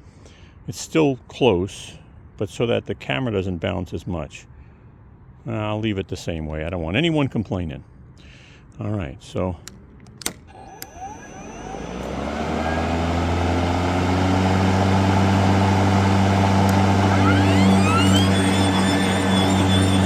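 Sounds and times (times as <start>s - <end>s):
electric mower motor hum: 10.2s - 20.0s
high-pitched whine: 15.4s - 20.0s.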